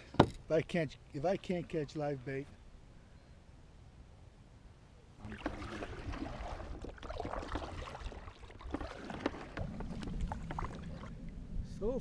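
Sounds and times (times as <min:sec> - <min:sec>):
water splashing around a kayak: 0:05.2 - 0:11.3.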